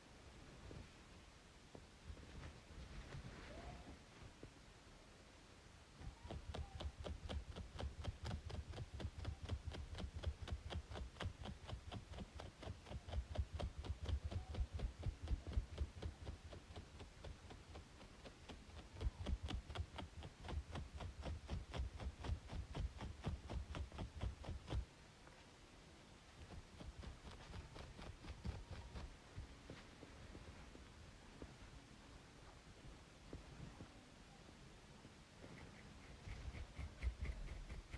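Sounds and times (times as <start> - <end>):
rhythmic scratching on scalp: 6.8 - 24.8, 26.5 - 29.1, 35.6 - 37.9.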